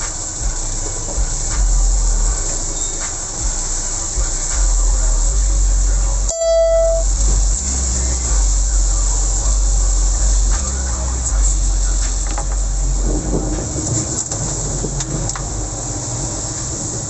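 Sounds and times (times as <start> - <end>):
steady rain: 0.0 - 6.3, 7.0 - 17.0
road traffic rumbling: 0.0 - 17.0
vehicle horn beep: 6.3 - 7.1.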